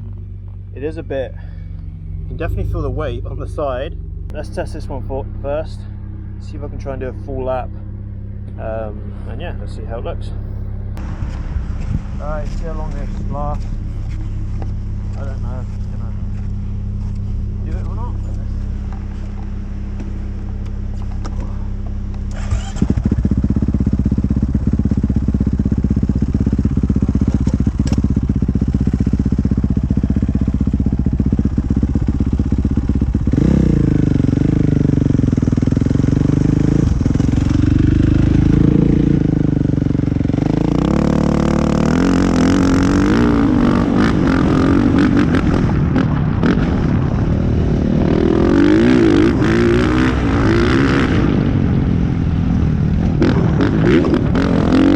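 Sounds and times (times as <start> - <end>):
dirt bike engine revving: 20.9 - 52.3, 53.1 - 54.9.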